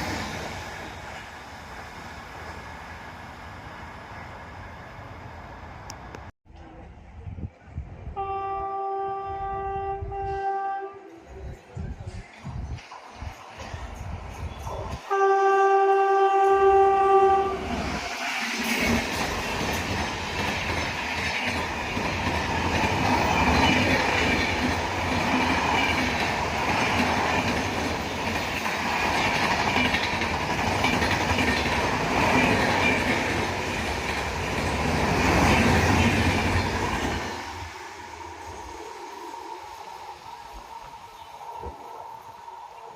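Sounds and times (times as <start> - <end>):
train horn blast: 8.2 - 11.3, 15.1 - 17.7
train wheels clattering over rails: 18.0 - 37.7.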